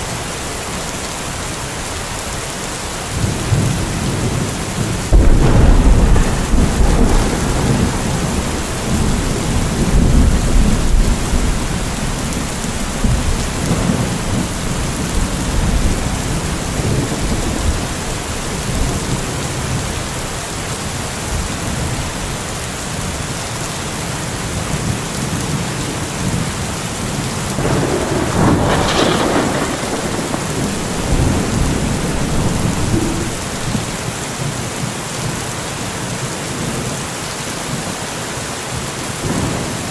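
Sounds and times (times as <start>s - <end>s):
heavy rain: 0.0s - 39.9s
low rolling thunder: 3.1s - 20.3s, 24.8s - 34.9s, 39.2s - 39.9s
sharp thunderclap: 3.2s - 19.3s, 27.5s - 34.2s.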